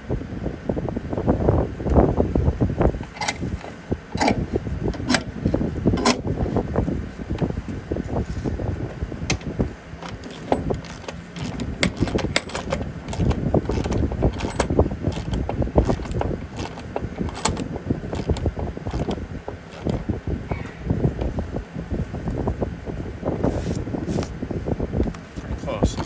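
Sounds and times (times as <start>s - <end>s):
metallic knocks and clinks: 10.0s - 17.6s.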